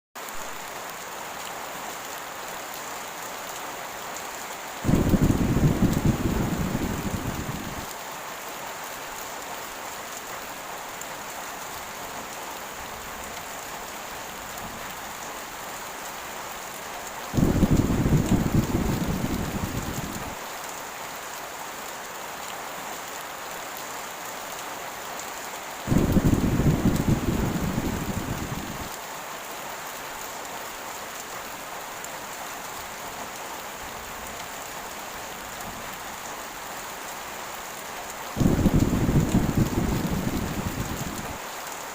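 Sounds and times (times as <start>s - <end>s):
heavy rain falling: 0.2s - 41.9s
deep rolls of thunder: 4.8s - 7.9s, 17.4s - 20.4s, 25.9s - 28.9s, 38.4s - 41.4s.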